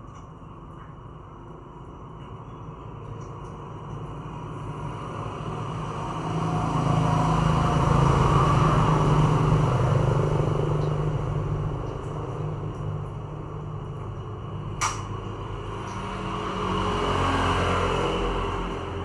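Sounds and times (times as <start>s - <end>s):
motor vehicle passing by: 5.5s - 12.6s, 15.5s - 19.0s.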